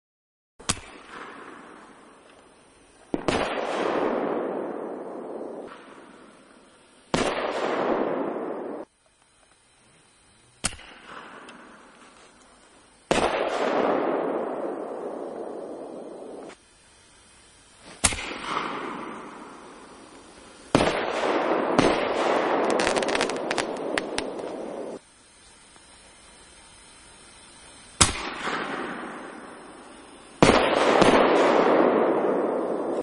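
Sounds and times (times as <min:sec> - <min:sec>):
firework crackling hiss: 0:00.6 - 0:33.0
firework bangs: 0:03.1 - 0:08.9, 0:13.1 - 0:16.6, 0:17.8 - 0:25.0, 0:28.0 - 0:33.0.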